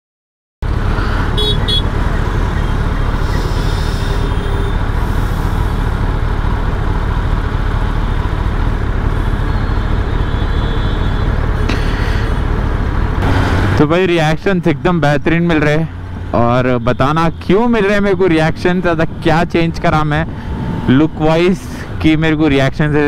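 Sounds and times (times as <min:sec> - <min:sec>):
city traffic: 0:00.6 - 0:23.0
motorcycle idling: 0:00.7 - 0:13.2
car horns: 0:01.0 - 0:05.2, 0:09.0 - 0:12.2, 0:16.5 - 0:18.6.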